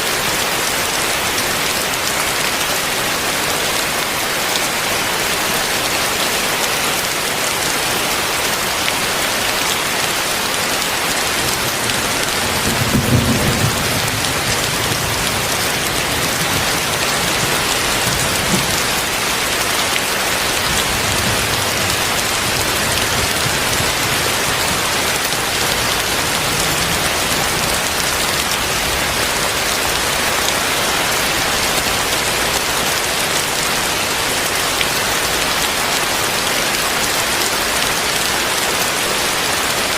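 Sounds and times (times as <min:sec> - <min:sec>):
heavy rain pouring: 0:00.0 - 0:39.9
thunder rumble: 0:11.4 - 0:29.3.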